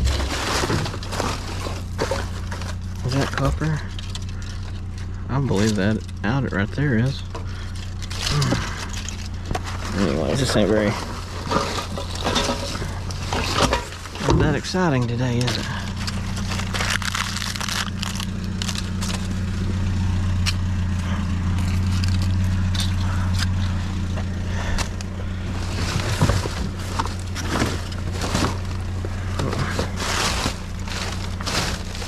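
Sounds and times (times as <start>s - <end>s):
clicks and rattles: 0.0s - 6.5s, 7.2s - 19.8s
truck engine running: 0.0s - 32.0s.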